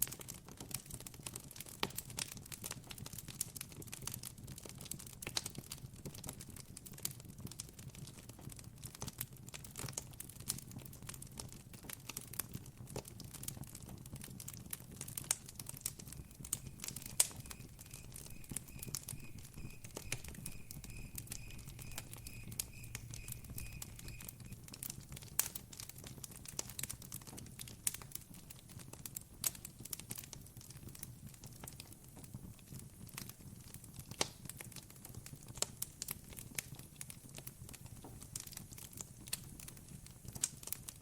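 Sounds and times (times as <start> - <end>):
campfire crackling: 11.7 - 31.9
cricket chirping: 16.5 - 24.5.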